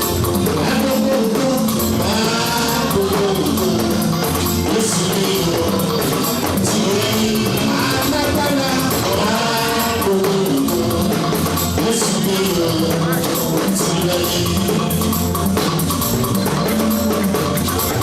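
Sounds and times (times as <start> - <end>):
band with guitar and drums: 0.0 - 18.0
voices singing gospel: 0.0 - 18.0.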